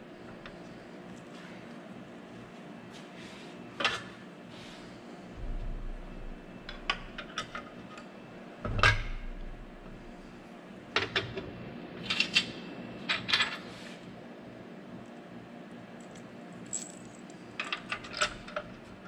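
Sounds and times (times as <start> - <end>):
metal parts clinking and clanking: 16.0 - 18.7.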